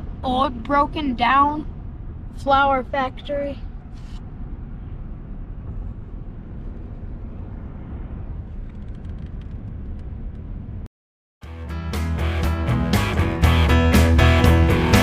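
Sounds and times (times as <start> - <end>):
car driving rumble: 0.0 - 10.9.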